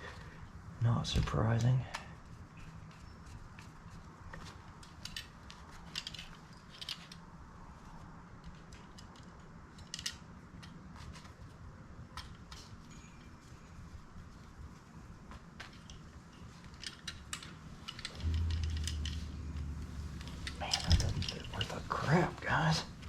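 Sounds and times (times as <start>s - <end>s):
faint steady hum: 0.0s - 23.0s
small metal parts clicking and scraping: 4.8s - 7.4s, 8.4s - 10.8s, 15.7s - 21.8s.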